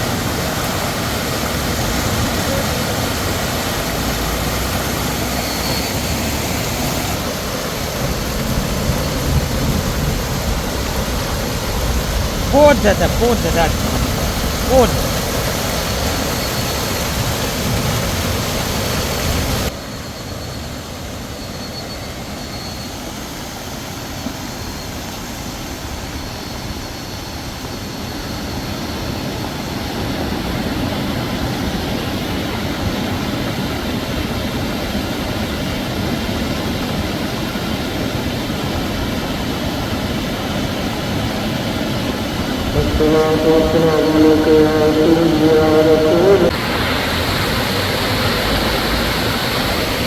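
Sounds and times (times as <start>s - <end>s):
heavy rain falling: 0.0s - 19.7s, 41.2s - 50.0s.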